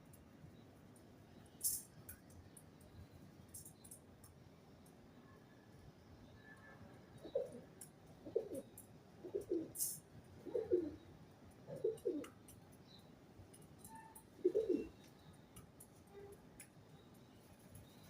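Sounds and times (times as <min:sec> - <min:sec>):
pigeon cooing: 0:07.2 - 0:07.6, 0:08.2 - 0:11.0, 0:11.7 - 0:12.3, 0:14.4 - 0:15.0.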